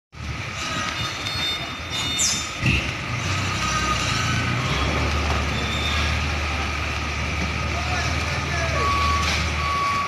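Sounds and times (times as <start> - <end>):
truck diesel engine running: 0.2 - 10.0
short falling squeal: 5.5 - 6.2.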